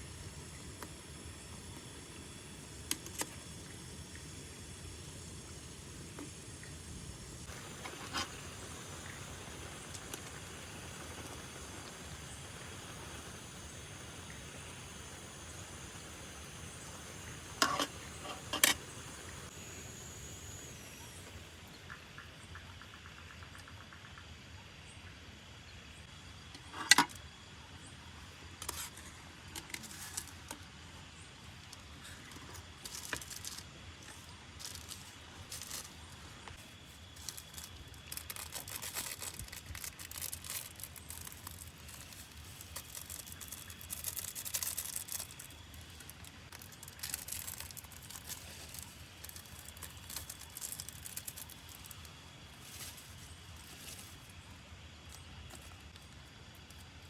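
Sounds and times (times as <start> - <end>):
faint steady hiss: 0.0 - 57.0
clinks and crinkling rustles: 31.7 - 54.4.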